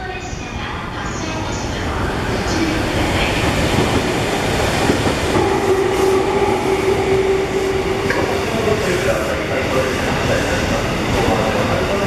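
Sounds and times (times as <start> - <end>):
train wheels rushing on rails: 2.7 - 12.0.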